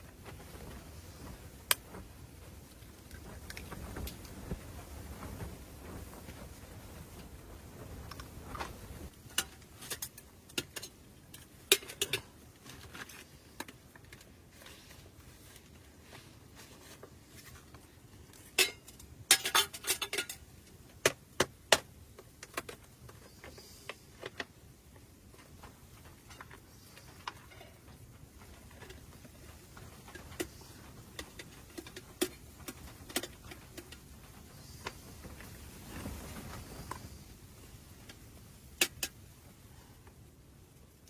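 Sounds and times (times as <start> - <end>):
clinks and knocks of small objects: 8.1 - 14.4, 16.9 - 24.6, 25.3 - 37.0.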